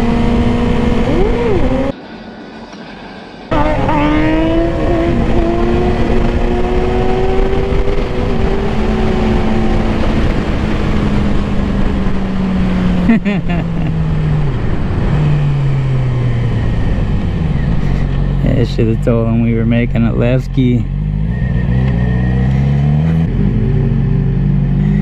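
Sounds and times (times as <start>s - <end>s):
motorcycle engine revving: 0.0s - 2.0s, 3.5s - 13.1s, 20.6s - 25.0s
wind rush: 0.0s - 19.4s.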